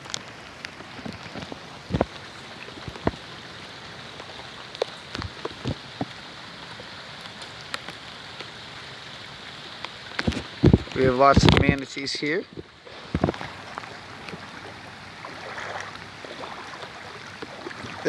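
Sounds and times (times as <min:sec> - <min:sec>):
close raindrop strikes: 0:00.0 - 0:08.6, 0:09.7 - 0:14.6
steady rain: 0:00.0 - 0:18.0.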